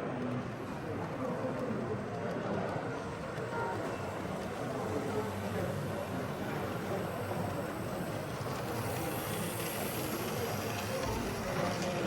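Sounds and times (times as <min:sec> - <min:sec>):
hum of busy hall: 0:00.0 - 0:12.0
model trains rumbling: 0:00.0 - 0:12.0.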